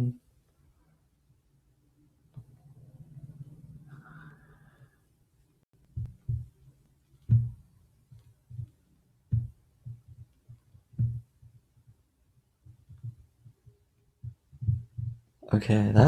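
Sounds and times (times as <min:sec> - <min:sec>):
stylus tapping on drawing tablet: 0:05.9 - 0:15.3.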